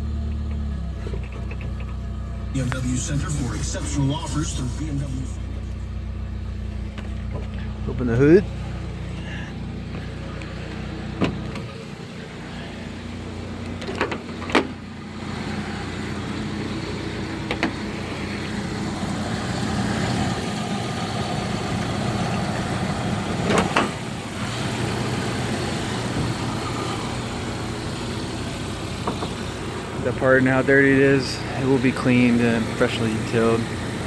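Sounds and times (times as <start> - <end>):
car engine idling: 0.0 - 34.0
sharp clicks and knocks: 0.3 - 2.0, 17.4 - 17.8, 29.0 - 29.4.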